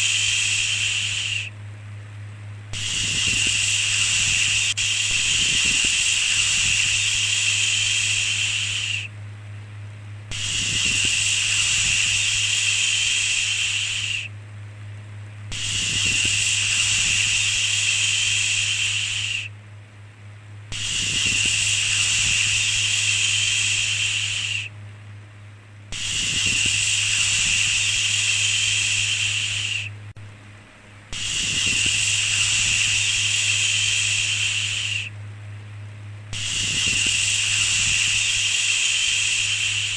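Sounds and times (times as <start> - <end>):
steady low hum: 0.0 - 39.9
person shushing: 2.8 - 9.1.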